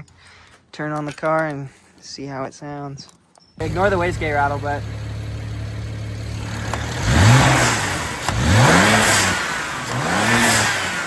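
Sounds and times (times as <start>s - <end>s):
car engine idling and revving: 3.6s - 11.0s.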